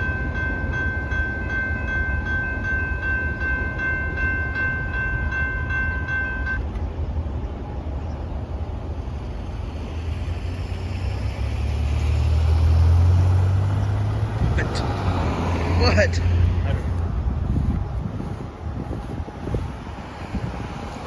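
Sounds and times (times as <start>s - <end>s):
crossing bell dinging: 0.0s - 6.8s
freight train rolling past: 0.0s - 21.0s.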